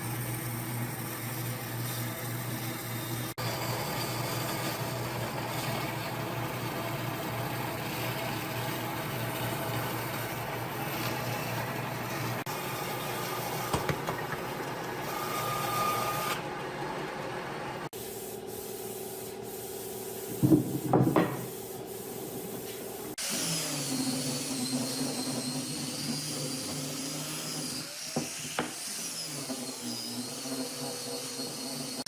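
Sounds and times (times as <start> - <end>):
power tool working wood: 15.0 - 16.5, 23.2 - 32.0.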